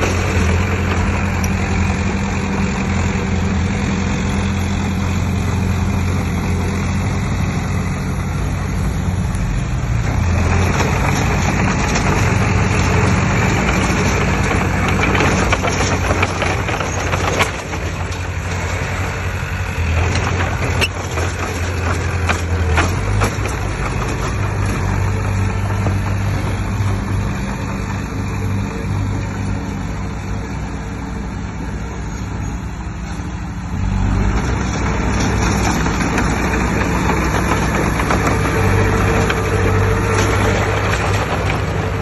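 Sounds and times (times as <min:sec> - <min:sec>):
diesel machinery running: 0:00.0 - 0:42.0
scraping and rattling: 0:09.9 - 0:29.4, 0:34.0 - 0:42.0.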